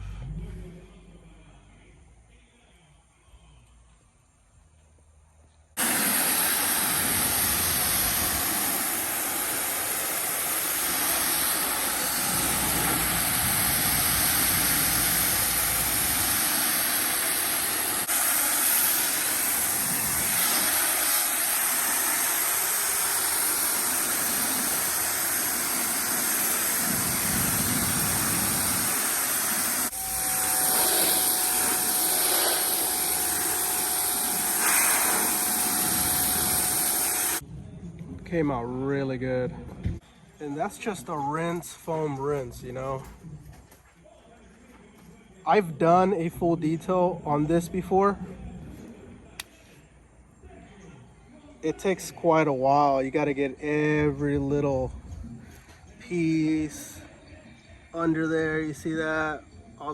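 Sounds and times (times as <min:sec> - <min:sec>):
pressure washer spraying water: 0:05.8 - 0:37.4.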